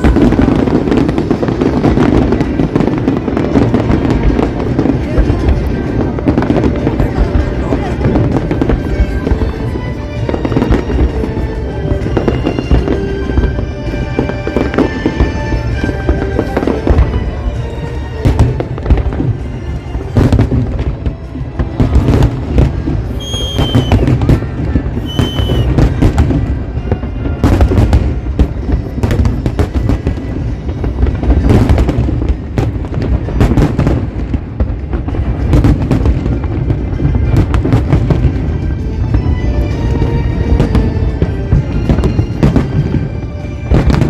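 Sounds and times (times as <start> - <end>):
fireworks bangs and booms: 0.0 - 44.0
whistling firework shells: 23.1 - 26.0.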